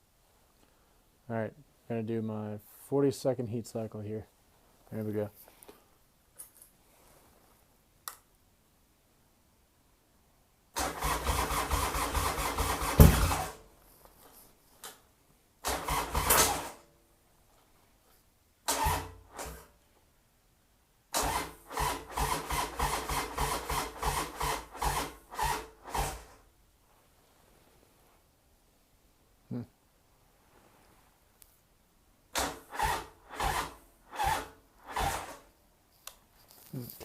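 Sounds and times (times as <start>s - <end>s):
starter cranking diesel engine: 10.8s - 13.6s, 15.6s - 16.8s, 18.7s - 19.6s, 21.2s - 26.3s, 32.4s - 35.4s.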